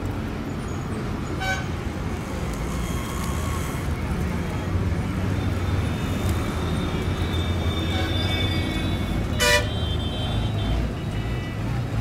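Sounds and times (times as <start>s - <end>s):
road traffic rumble: 0.0s - 12.0s
car horn toot: 9.3s - 10.6s.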